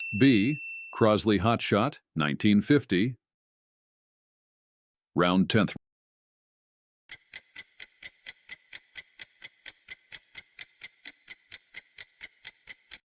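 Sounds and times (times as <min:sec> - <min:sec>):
clock ticking: 0:07.1 - 0:13.0.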